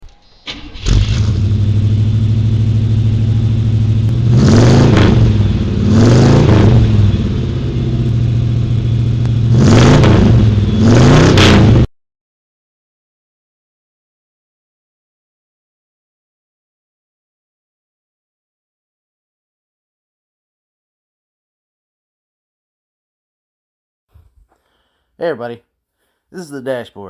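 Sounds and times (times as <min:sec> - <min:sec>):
car engine idling and revving: 0:00.1 - 0:11.9.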